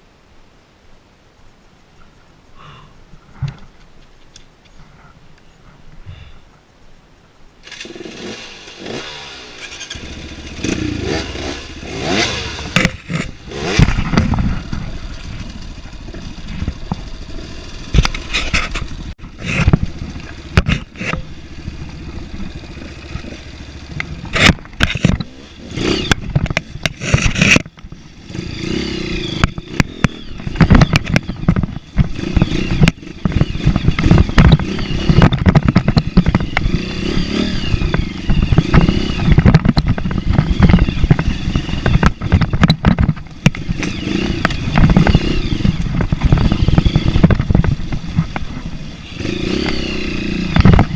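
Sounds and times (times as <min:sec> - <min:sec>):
motorcycle engine revving: 0:07.6 - 0:50.9
clattering knocks and scrapes: 0:17.9 - 0:21.3.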